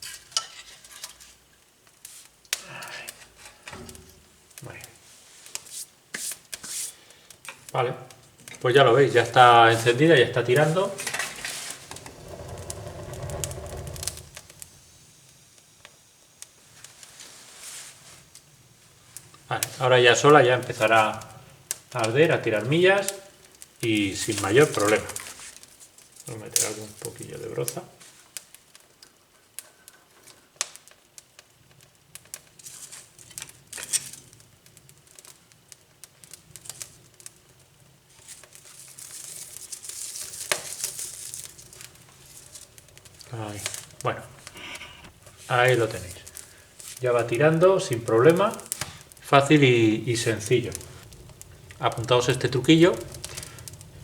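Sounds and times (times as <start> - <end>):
rustling noise: 0.0 - 2.4, 4.9 - 7.1, 8.7 - 15.5, 16.6 - 19.8, 24.2 - 26.7, 38.0 - 54.0
wood fire crackling and popping: 0.0 - 54.0
dry brushwood crinkling: 36.0 - 54.0.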